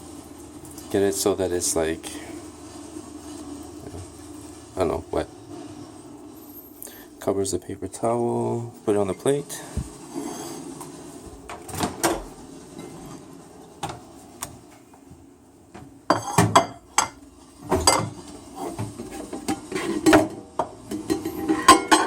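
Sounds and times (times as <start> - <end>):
plate and kitchen things clattering: 16.1 - 22.0.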